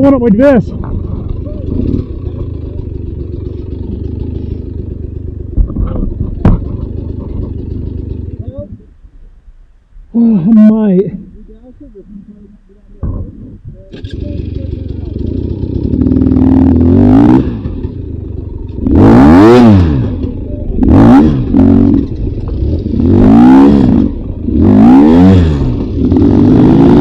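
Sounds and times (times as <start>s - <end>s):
dirt bike engine revving: 0.0s - 8.4s, 14.0s - 27.0s.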